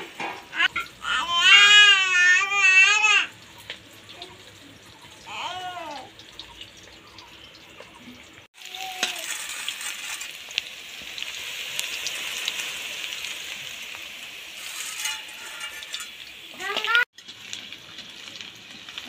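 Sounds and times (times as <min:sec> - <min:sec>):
onions sizzling in hot oil: 0:00.0 - 0:19.0.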